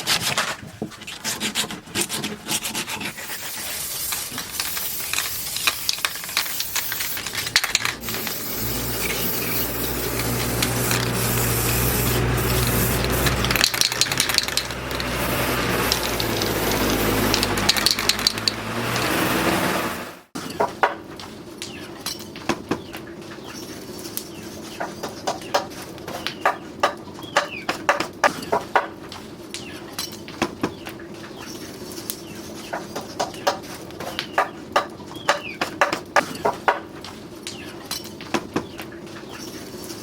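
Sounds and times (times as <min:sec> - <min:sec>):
sanding or filing wood: 0:01.1 - 0:05.7, 0:08.0 - 0:20.1.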